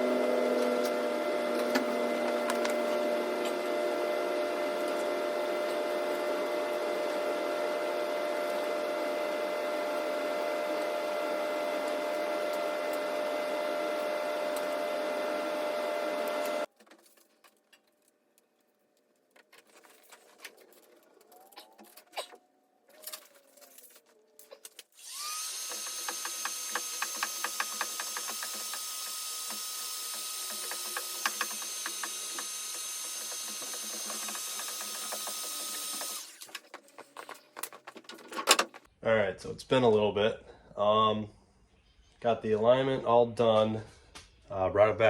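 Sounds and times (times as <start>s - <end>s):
small power tool motor running: 0.0s - 16.7s, 25.0s - 36.5s.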